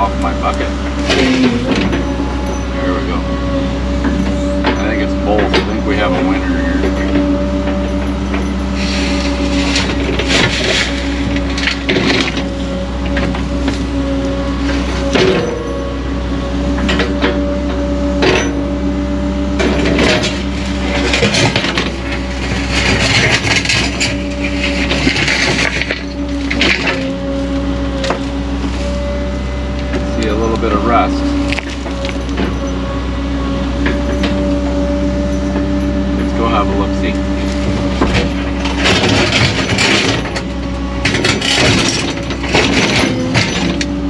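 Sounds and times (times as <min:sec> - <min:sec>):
diesel engine running: 0:00.0 - 0:44.0
bucket scraping on rock: 0:08.7 - 0:11.8.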